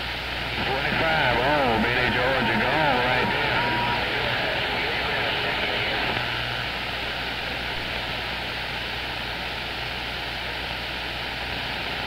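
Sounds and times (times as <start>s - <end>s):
radio receiver static hiss: 0.0s - 8.6s.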